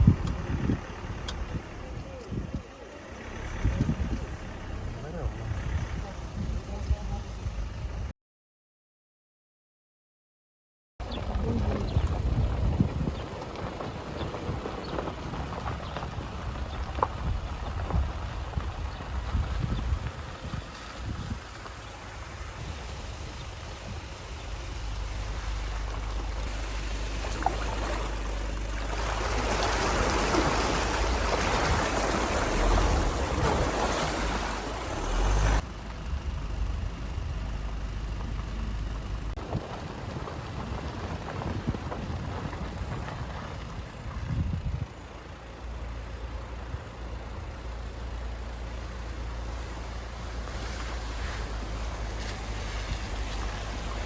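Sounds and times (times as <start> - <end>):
tyre and wind noise: 0.0 - 8.1, 11.0 - 54.0
vehicle engine and road rumble: 0.0 - 8.1, 11.0 - 54.0.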